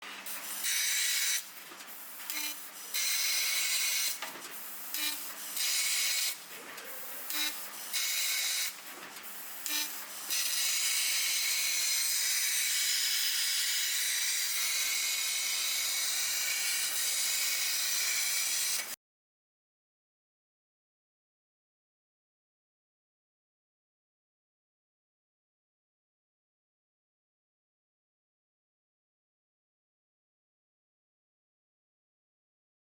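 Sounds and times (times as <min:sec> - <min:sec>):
laser cutter jet hissing: 0:00.2 - 0:06.4, 0:07.0 - 0:19.0.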